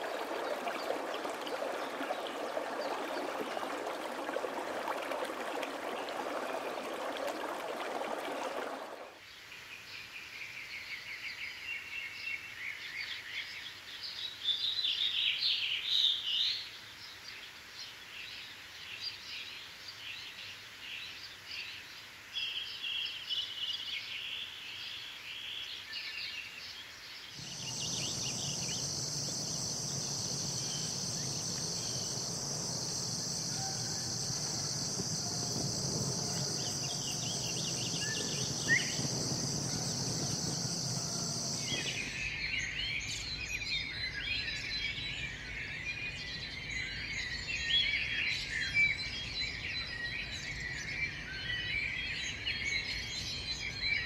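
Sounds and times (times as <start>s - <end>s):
birds chirping: 0.0s - 9.1s, 27.4s - 43.2s
insect drone: 0.0s - 9.2s, 27.4s - 43.5s
low rumble: 27.4s - 42.3s.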